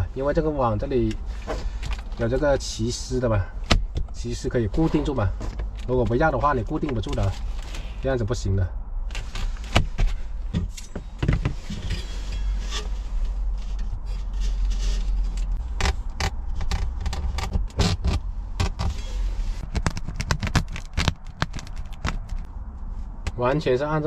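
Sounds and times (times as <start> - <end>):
steady low rumble: 0.0 - 24.0
sharp clicks and knocks: 19.6 - 22.5.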